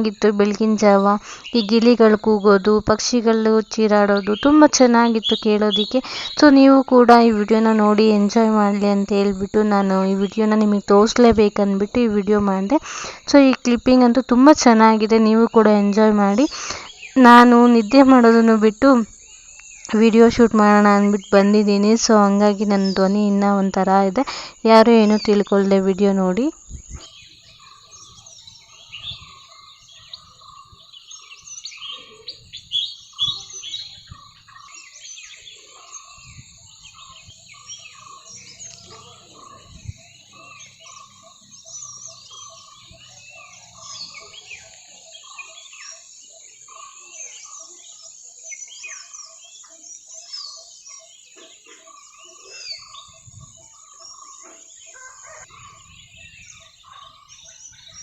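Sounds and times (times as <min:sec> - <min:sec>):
repeating bird call: 0:00.0 - 0:19.2
birds chirping and calling: 0:00.0 - 0:58.0.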